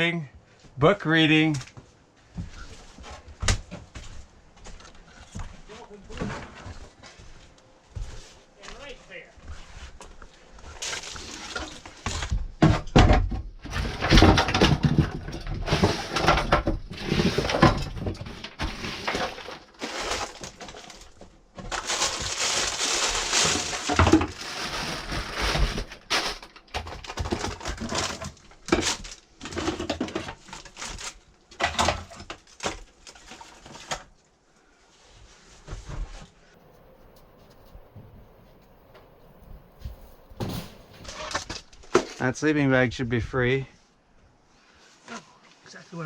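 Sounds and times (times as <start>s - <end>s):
junk clattering and crunching: 10.6s - 34.1s, 36.6s - 42.3s
scraping: 35.8s - 42.3s.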